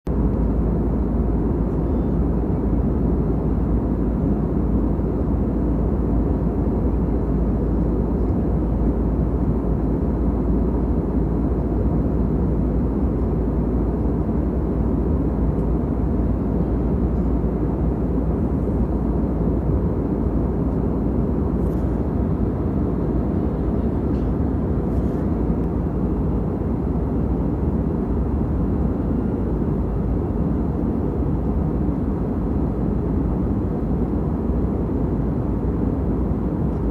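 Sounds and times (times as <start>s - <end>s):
aeroplane engine drone: 0.1s - 36.9s.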